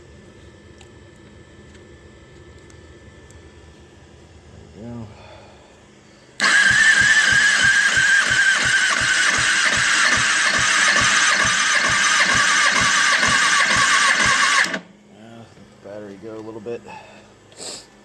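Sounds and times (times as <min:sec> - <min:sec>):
electric starter cranking engine: 0:06.4 - 0:14.9.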